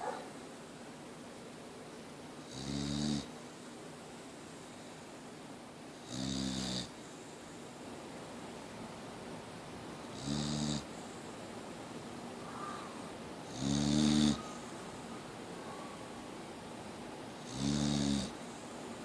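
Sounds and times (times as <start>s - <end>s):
dog snoring: 2.4s - 3.4s, 6.0s - 7.0s, 10.1s - 11.1s, 13.4s - 14.6s, 17.4s - 18.5s.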